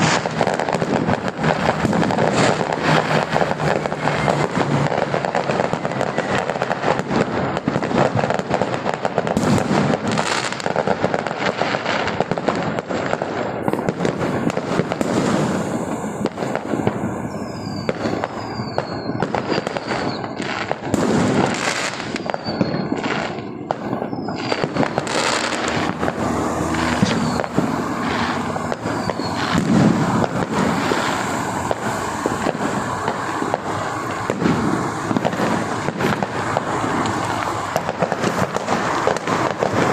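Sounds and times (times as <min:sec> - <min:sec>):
falling firework whistles: 0:00.0 - 0:39.9
fireworks bangs and crackling: 0:00.0 - 0:39.9.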